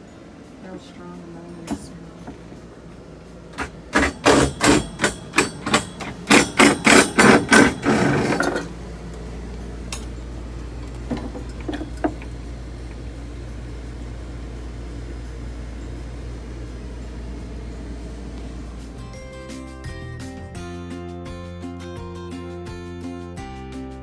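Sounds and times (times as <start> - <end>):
steady low hum: 0.0 - 19.4
hammer striking: 3.6 - 8.7.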